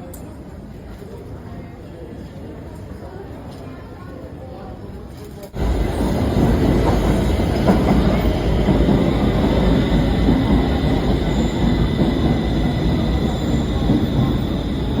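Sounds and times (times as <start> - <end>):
metro train low rumble: 5.5 - 15.0.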